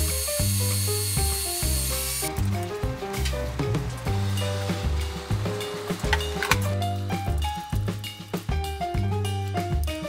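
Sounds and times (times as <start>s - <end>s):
bass notes: 1.2s - 9.5s.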